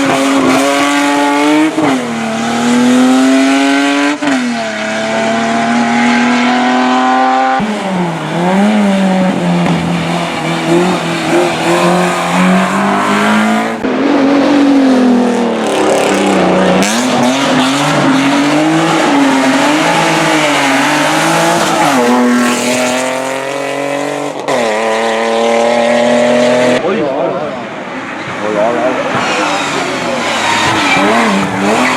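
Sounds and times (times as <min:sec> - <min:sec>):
racing car engine at high revs: 0:00.0 - 0:31.9
tyres squealing: 0:29.1 - 0:31.9.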